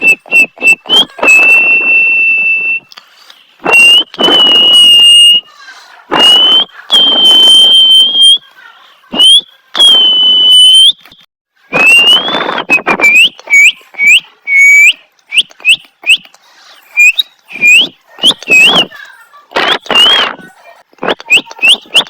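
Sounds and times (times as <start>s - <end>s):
parrot whistling: 0.0s - 2.8s, 3.6s - 5.4s, 11.8s - 16.3s, 17.0s - 18.9s.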